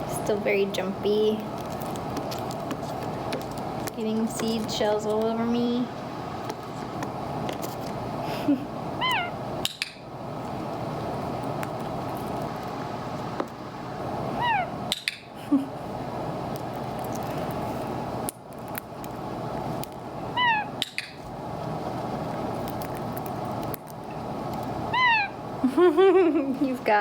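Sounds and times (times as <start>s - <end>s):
steady background noise: 0.0s - 27.0s
parrot giving soft calls: 9.0s - 9.4s, 14.4s - 14.8s, 20.3s - 20.9s, 24.9s - 25.4s.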